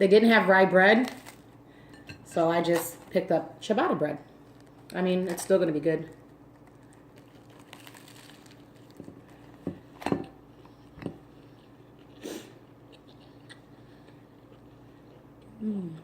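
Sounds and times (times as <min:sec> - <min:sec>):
chewing a sandwich: 0:06.2 - 0:09.6, 0:10.4 - 0:15.6.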